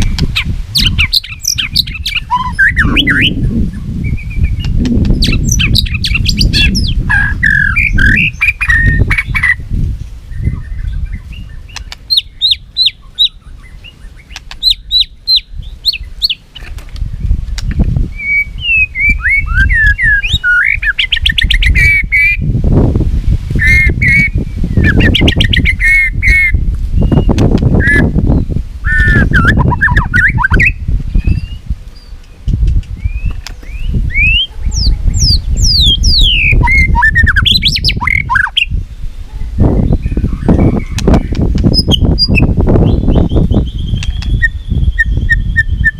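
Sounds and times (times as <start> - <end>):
bird singing whistled phrases: 0.8 - 9.6, 18.1 - 22.4, 23.6 - 31.6, 33.0 - 38.7, 39.7 - 45.9
low rumbling noise: 2.2 - 11.7.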